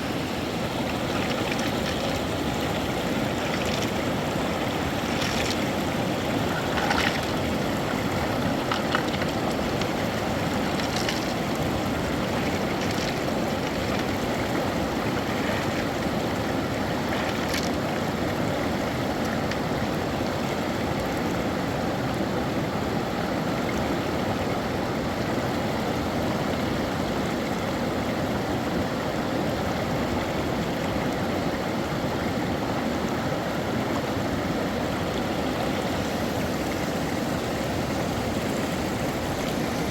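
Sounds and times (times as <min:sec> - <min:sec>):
flowing river water: 0:00.0 - 0:39.9.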